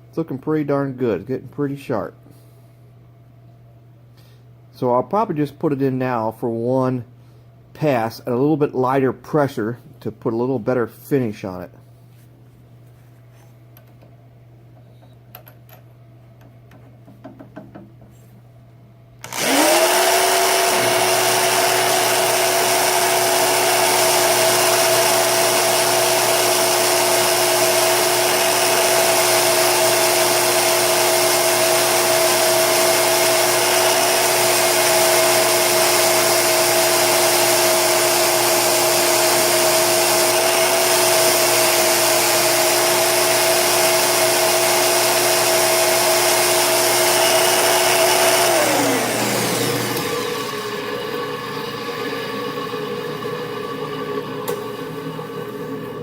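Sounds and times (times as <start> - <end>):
drill whining and grinding metal: 19.2 - 52.6.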